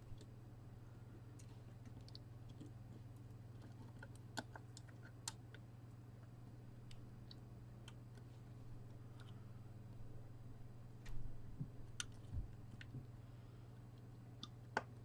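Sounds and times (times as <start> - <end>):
low hum: 5.7 - 14.4.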